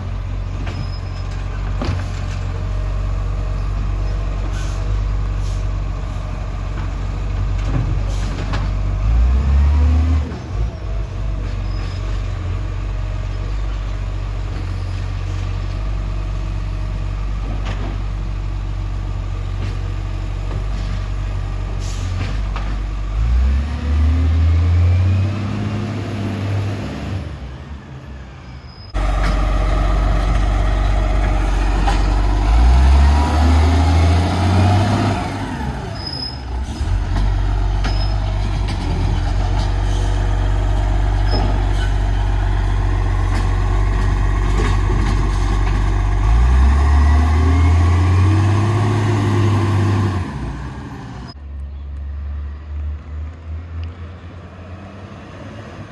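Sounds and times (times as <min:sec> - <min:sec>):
air brakes hissing: 0:04.4 - 0:05.7, 0:21.8 - 0:22.3, 0:35.7 - 0:38.3
diesel truck engine revving: 0:08.0 - 0:13.2, 0:14.2 - 0:28.3, 0:28.9 - 0:51.4.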